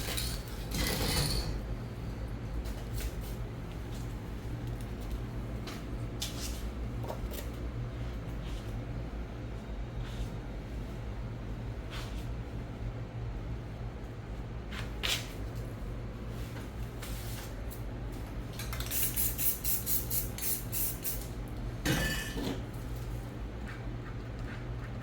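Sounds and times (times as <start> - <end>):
steady low hum: 1.4 - 25.0
spray can clinking hisses: 18.8 - 21.3.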